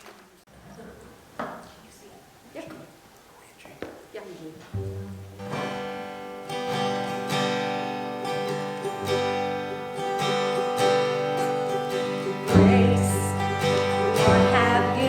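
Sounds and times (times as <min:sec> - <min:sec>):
strummed acoustic guitar chords: 0:04.8 - 0:15.0
person singing: 0:11.7 - 0:15.0.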